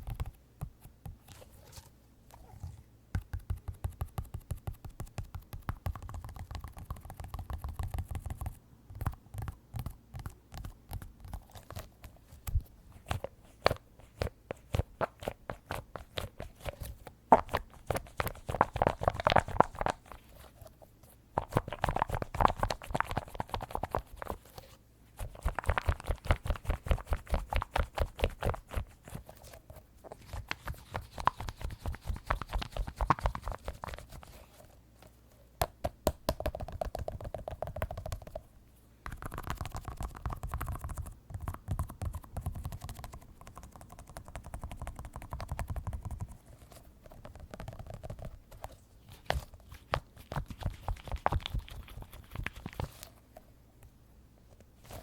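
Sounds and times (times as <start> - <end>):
tapping on squishy squeeze toy: 35.6 - 38.4.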